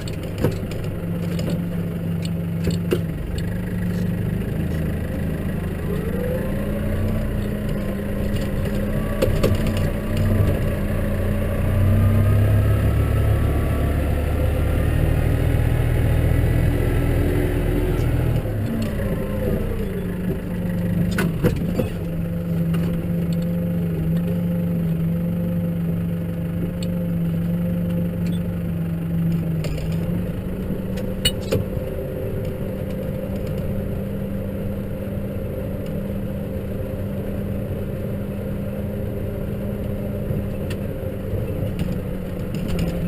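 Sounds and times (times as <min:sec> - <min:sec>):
tractor engine revving: 0:00.0 - 0:43.0.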